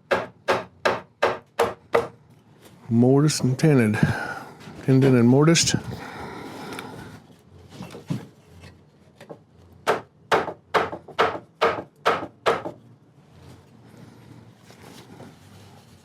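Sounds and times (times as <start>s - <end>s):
mallet striking wooden chair frame: 0.0s - 2.2s, 9.9s - 12.8s.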